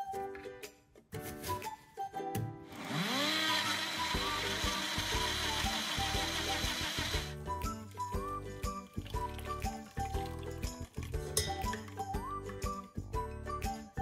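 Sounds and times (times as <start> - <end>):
light background music: 0.0 - 14.0
blender motor whining: 2.7 - 7.4.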